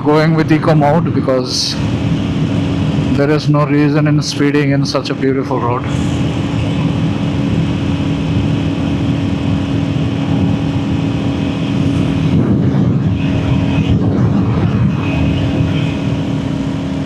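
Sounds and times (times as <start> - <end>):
wind rush on microphone: 0.0 - 17.0
motorcycle engine cruising: 5.8 - 17.0.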